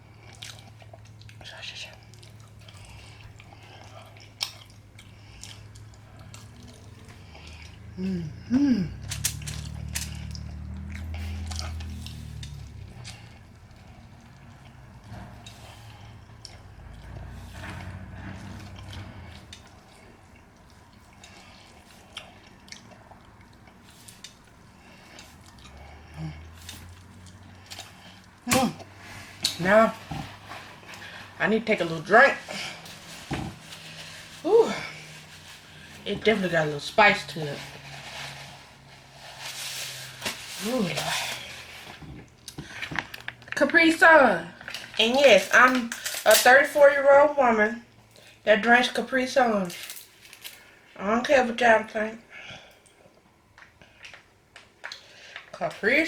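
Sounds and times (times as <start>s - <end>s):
wet chewing: 0.0s - 43.8s
low steady hum: 0.0s - 54.6s
person humming mm: 7.9s - 9.2s.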